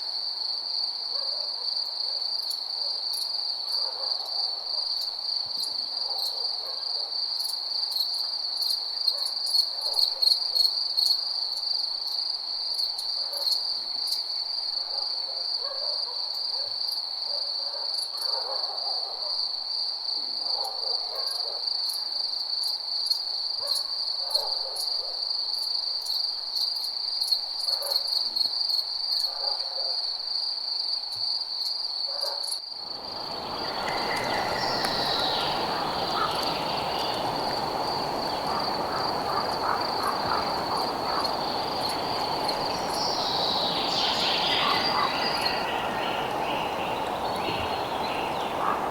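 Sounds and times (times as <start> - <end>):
crickets chirping: 0.0 - 18.8, 21.3 - 48.9
night animal calls: 32.9 - 48.9.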